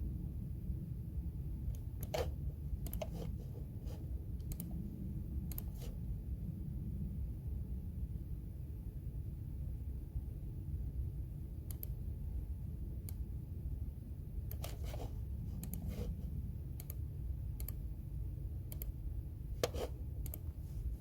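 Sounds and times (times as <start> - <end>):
low room hum: 0.0 - 21.0
computer keyboard keys clicking: 1.7 - 3.3, 4.4 - 4.7.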